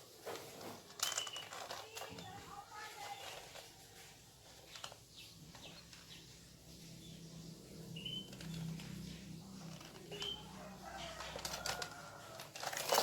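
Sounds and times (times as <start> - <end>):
bird chirps: 5.0 - 8.6.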